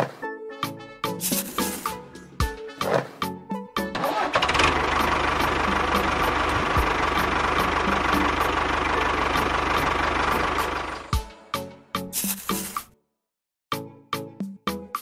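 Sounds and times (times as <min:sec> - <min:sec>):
engine running: 0:03.9 - 0:11.4.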